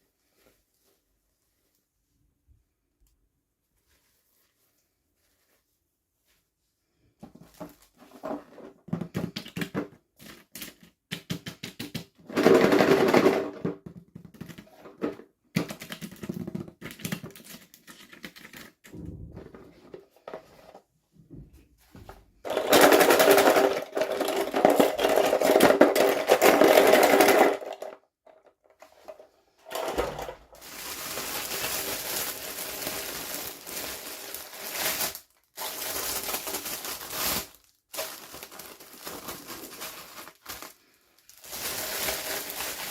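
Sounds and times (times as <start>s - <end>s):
packaging rustling and crinkling: 29.0s - 42.9s.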